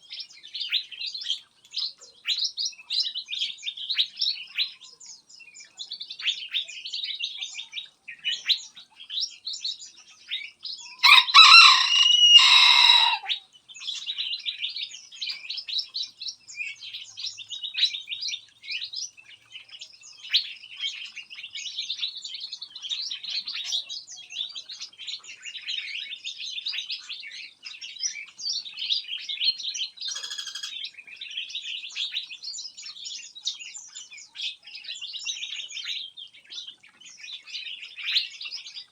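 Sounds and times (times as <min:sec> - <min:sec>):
small birds chirping and twittering: 0:00.0 - 0:38.9
loud harsh bird call: 0:10.9 - 0:13.4.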